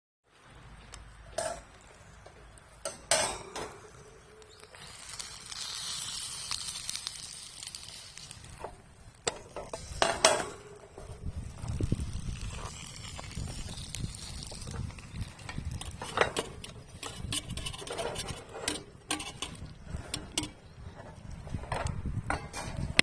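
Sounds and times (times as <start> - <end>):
dumplings sizzling in frying pan: 1.6 - 20.8
metal pan clanks: 2.9 - 3.8, 15.9 - 20.6.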